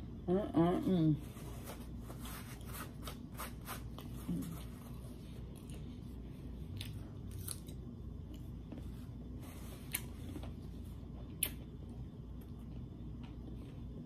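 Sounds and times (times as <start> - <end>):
person chewing food: 5.4 - 13.5.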